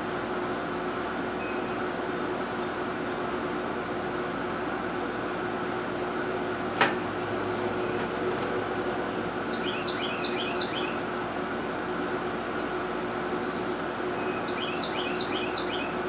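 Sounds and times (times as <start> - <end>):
steady background hum: 0.0 - 16.0
bird chirping: 9.5 - 12.6.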